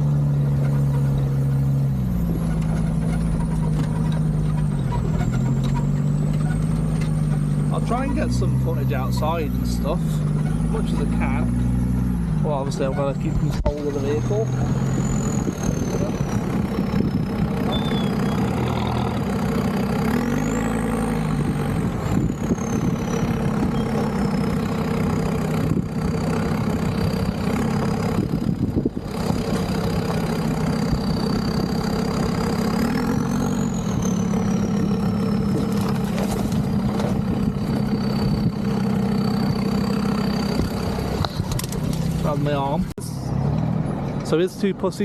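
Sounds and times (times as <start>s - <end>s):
diesel engine revving: 0.0s - 45.0s.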